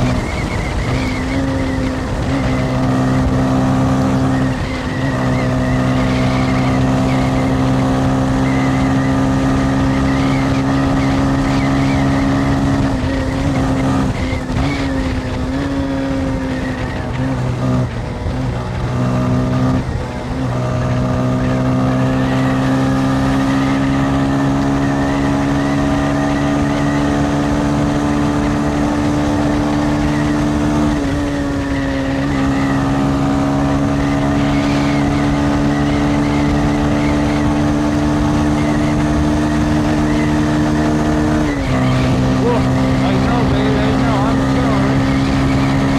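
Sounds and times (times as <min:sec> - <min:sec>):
motorcycle engine pulling: 0:33.7 - 0:45.9.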